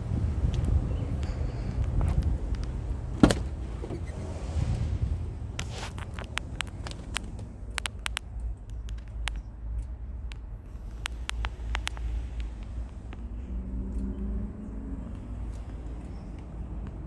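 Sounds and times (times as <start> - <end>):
truck engine rumbling: 0.0 - 17.0
sharp clicks: 5.6 - 13.3.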